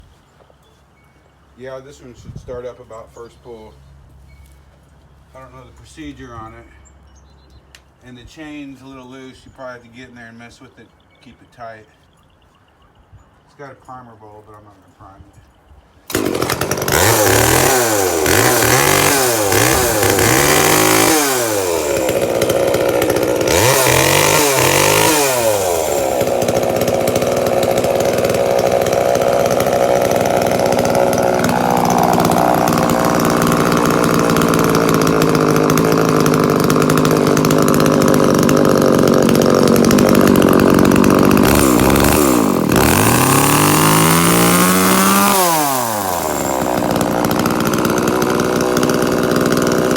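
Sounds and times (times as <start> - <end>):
chainsaw revving: 16.1 - 49.9.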